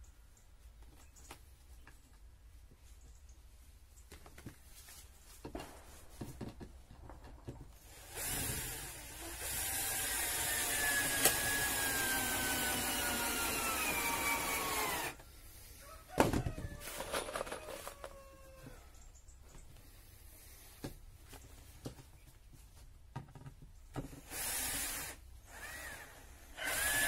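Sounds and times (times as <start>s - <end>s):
electric drill whining: 7.8s - 15.2s, 24.2s - 27.0s.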